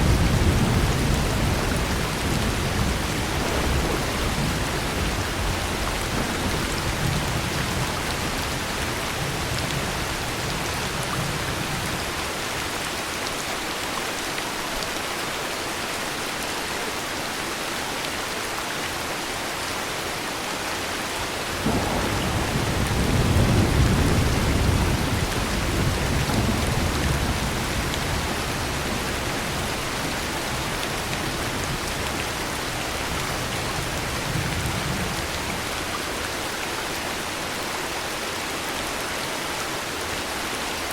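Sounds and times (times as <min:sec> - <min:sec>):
thunder clap and rumble: 0:00.0 - 0:12.1, 0:21.4 - 0:36.0
heavy rain falling: 0:00.0 - 0:40.9.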